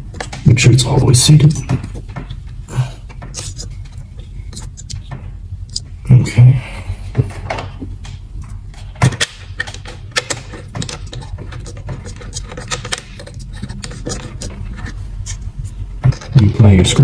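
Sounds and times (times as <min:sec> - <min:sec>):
hands clicking and tapping plastic parts: 0:00.0 - 0:00.5, 0:07.1 - 0:15.4
steady low hum: 0:00.0 - 0:17.0.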